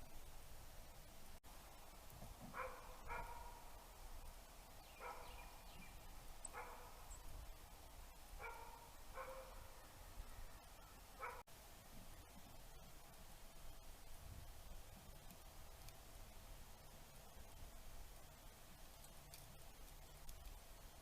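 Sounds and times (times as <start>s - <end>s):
faint dog barking: 2.5s - 3.7s, 5.0s - 5.4s, 6.5s - 7.0s, 8.4s - 9.8s, 11.2s - 11.5s.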